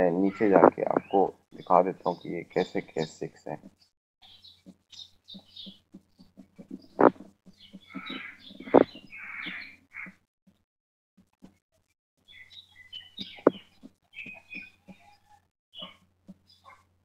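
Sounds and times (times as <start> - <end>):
small birds chirping: 0.0 - 10.6, 12.2 - 16.9
sharp clicks: 6.6 - 7.3.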